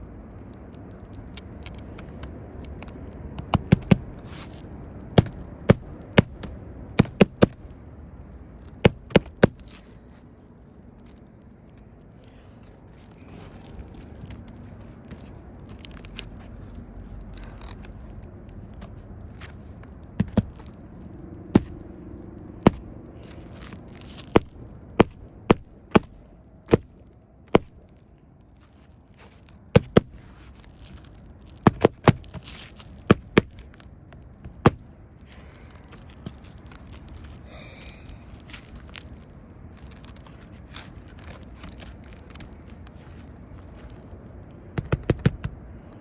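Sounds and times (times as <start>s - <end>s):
rustling and scraping of handling: 0.0s - 46.0s
hammer driving nails into shingles: 3.4s - 4.2s, 5.2s - 7.6s, 8.8s - 9.7s, 21.5s - 22.0s, 22.6s - 22.8s, 24.2s - 27.8s, 29.8s - 30.2s, 31.6s - 32.4s, 44.8s - 45.6s.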